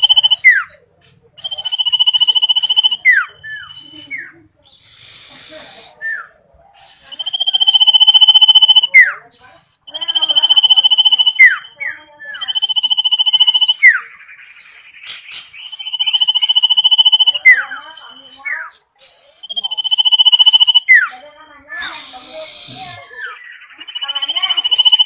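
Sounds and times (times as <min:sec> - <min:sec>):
bird singing pulsing whistled notes: 0:00.0 - 0:00.7, 0:01.4 - 0:04.3, 0:07.1 - 0:09.2, 0:09.9 - 0:14.2, 0:15.0 - 0:18.7, 0:19.4 - 0:21.2, 0:23.2 - 0:25.0.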